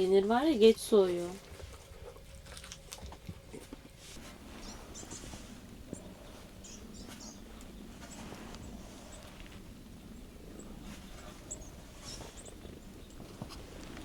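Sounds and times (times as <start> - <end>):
small birds chirping: 4.2 - 14.0.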